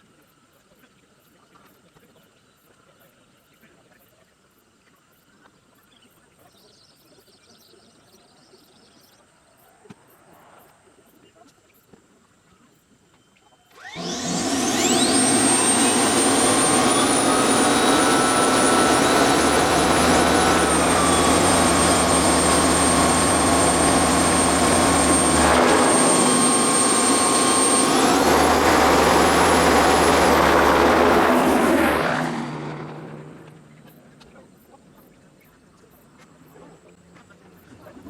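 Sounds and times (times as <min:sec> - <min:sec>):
helicopter rotor beat: 0:13.8 - 0:34.0
helicopter turbine whine: 0:13.8 - 0:34.2.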